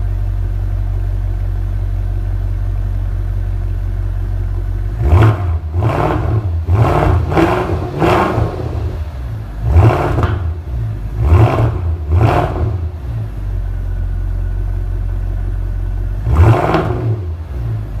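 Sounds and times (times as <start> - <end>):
car engine revving: 4.8 - 18.0.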